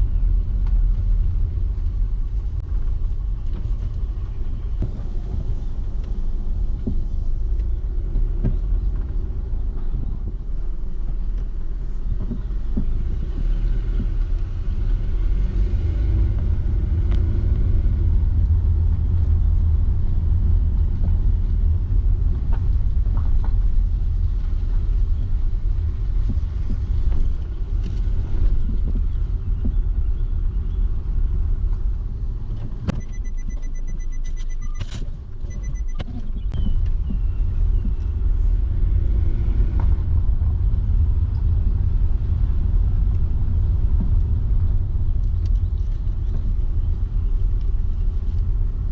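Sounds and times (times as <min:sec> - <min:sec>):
car road and engine rumble: 0:00.0 - 0:48.9
faint knocks from road: 0:06.0 - 0:10.3.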